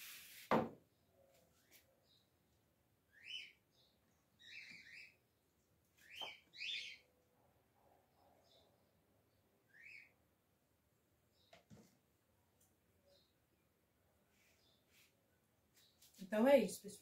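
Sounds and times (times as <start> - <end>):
bird chirping: 0.9 - 7.2, 8.1 - 10.4, 13.0 - 13.5.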